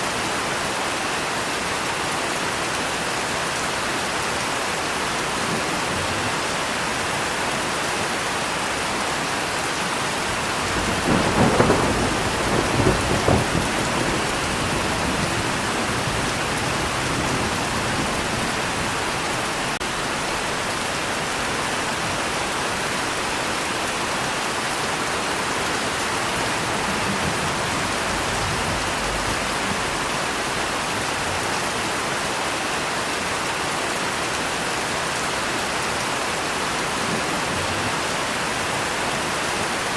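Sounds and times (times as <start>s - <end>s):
steady rain: 0.0s - 39.9s
thunder cracking and rumbling: 10.4s - 19.9s, 26.1s - 31.4s.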